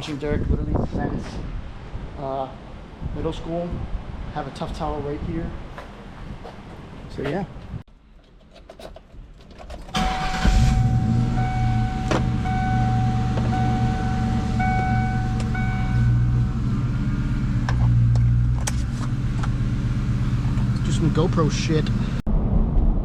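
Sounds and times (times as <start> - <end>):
car engine starting and idling: 9.4 - 22.3
car warning chime beeping: 10.0 - 16.6.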